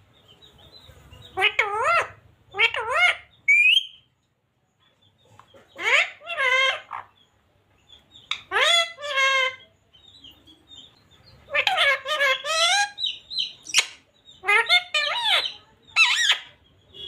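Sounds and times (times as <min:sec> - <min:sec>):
parrot calling: 0:01.4 - 0:04.1, 0:05.8 - 0:07.2, 0:08.3 - 0:09.7, 0:11.5 - 0:17.0.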